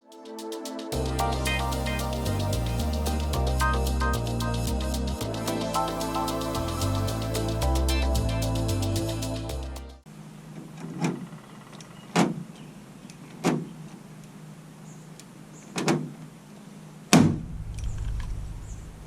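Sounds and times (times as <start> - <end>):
music: 0.0 - 10.0
low hum: 1.0 - 10.0, 17.3 - 19.0.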